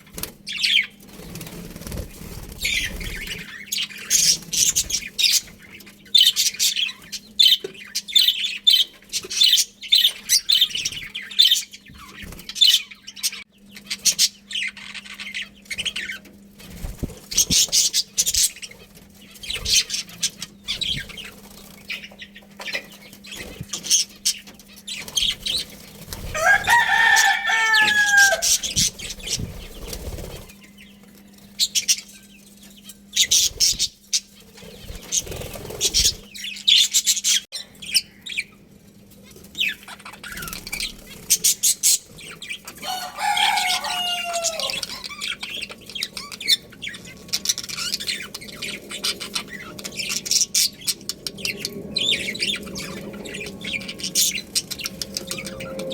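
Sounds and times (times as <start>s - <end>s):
budgerigars chirping: 0.5s - 16.3s, 17.2s - 31.0s, 31.6s - 38.6s, 39.4s - 55.9s.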